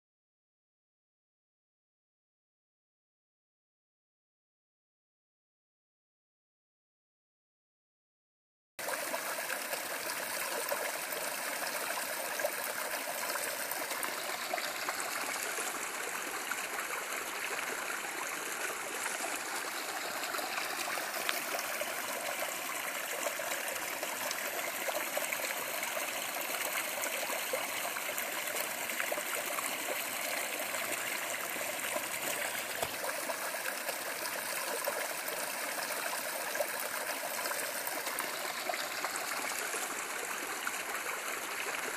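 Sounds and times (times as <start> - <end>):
stream water rushing: 8.8 - 41.9.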